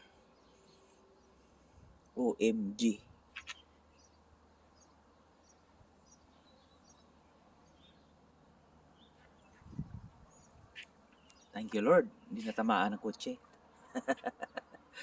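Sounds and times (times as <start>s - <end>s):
faint bird chirps: 3.3s - 8.2s.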